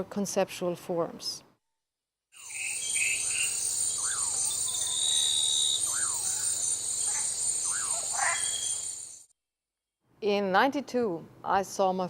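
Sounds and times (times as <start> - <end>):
bird whistling up and down: 2.4 - 9.2
brief high bird calls: 2.4 - 9.2
high-pitched insect chorus: 2.4 - 9.3.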